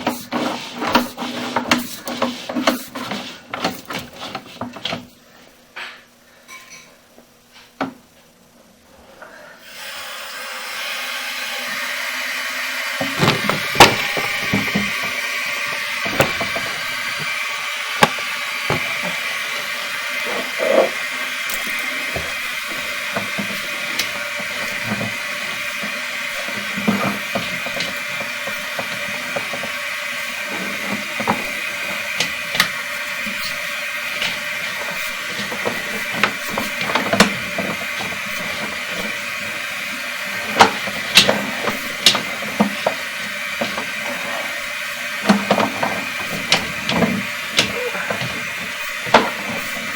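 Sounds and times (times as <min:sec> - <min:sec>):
steady hiss: 0:11.4 - 0:49.9
cable clicks and knocks: 0:13.0 - 0:17.4, 0:21.5 - 0:29.8, 0:40.4 - 0:44.1, 0:45.2 - 0:49.9.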